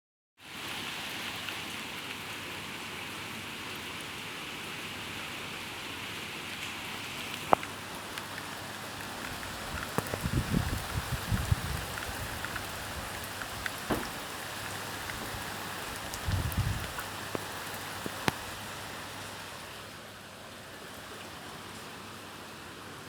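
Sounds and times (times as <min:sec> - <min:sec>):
rain falling: 0:00.5 - 0:23.0
small ticks: 0:07.3 - 0:10.4
sharp tap: 0:13.9 - 0:14.2.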